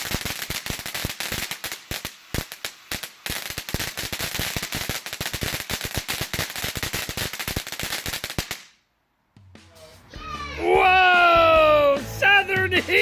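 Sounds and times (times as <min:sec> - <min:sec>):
hiss of sparks: 0:00.0 - 0:08.7
firework crackling pops: 0:00.0 - 0:08.8.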